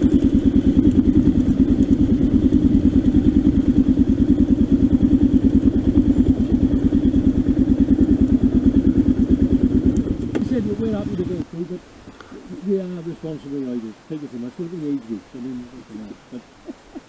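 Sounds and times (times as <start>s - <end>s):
motorcycle engine idling: 0.0s - 11.6s.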